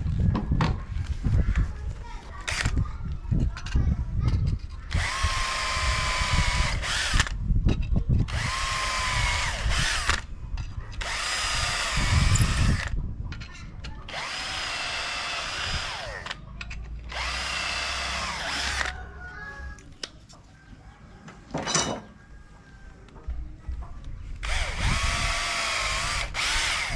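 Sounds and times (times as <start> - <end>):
electric drill whining: 4.9 - 7.4, 8.3 - 10.3, 11.0 - 13.0, 14.1 - 16.4, 17.1 - 19.0, 24.4 - 26.9.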